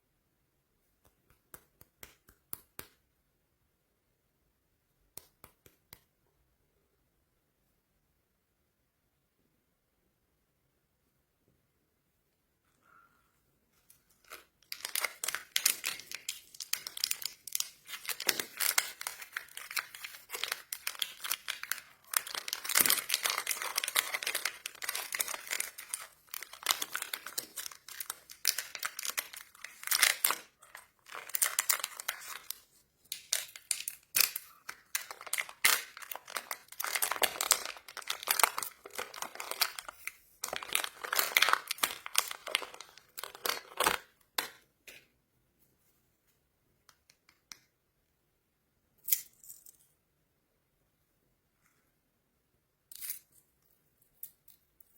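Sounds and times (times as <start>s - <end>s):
plastic wrappers crinkling: 13.8s - 44.6s.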